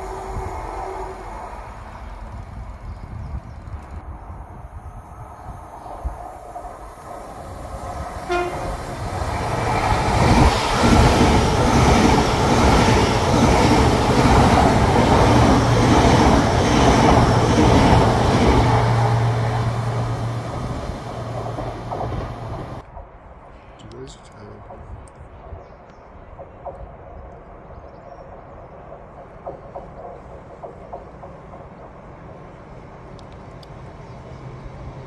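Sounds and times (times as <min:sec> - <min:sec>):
train passing on rails: 0:00.0 - 0:35.0
train horn toot: 0:08.2 - 0:08.8.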